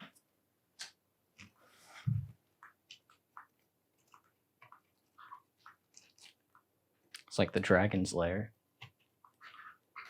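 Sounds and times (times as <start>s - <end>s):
parrot chewing wooden toy: 8.9s - 10.0s.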